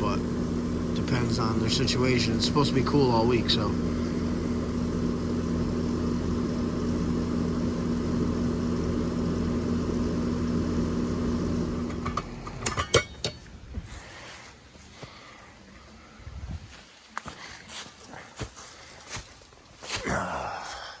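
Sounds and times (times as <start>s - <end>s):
air conditioner humming: 0.0s - 16.5s.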